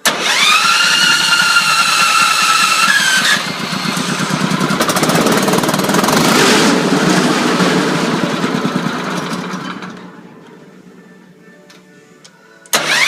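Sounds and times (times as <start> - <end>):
rattly machine engine running: 0.0 - 10.3.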